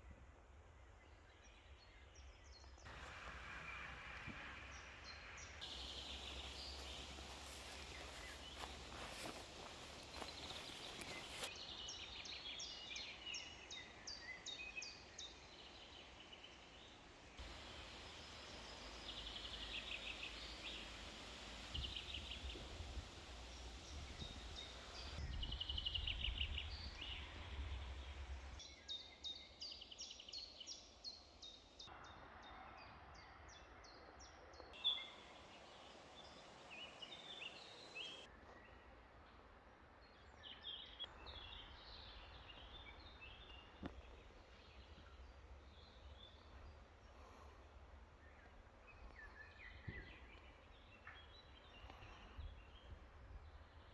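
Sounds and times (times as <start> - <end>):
small birds chirping: 0.9 - 31.9
faint steady hiss: 2.7 - 28.7, 34.8 - 53.9.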